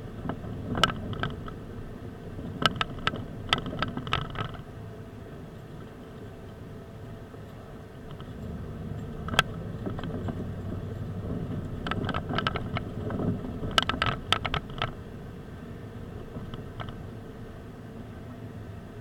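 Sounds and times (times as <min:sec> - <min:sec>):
car engine and road hum: 0:00.0 - 0:19.0
sharp clicks and rattles: 0:00.2 - 0:01.6, 0:02.4 - 0:04.7, 0:07.4 - 0:15.1, 0:16.2 - 0:17.1.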